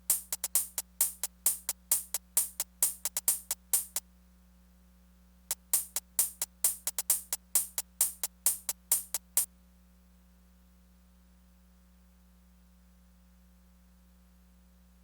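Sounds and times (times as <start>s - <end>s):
sharp percussion hits: 0.0s - 4.0s, 5.5s - 9.5s.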